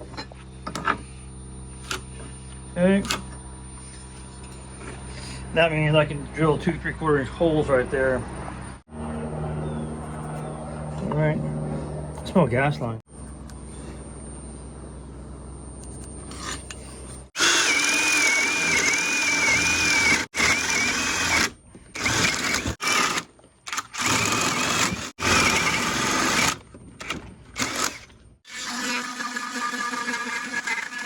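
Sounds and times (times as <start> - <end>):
low steady hum: 0.0 - 22.1
power drill boring into wood: 17.4 - 31.0.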